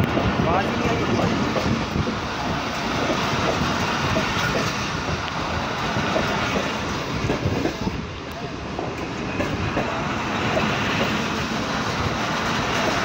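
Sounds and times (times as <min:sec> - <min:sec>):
train wheels clattering over rail joints: 0:00.0 - 0:13.0.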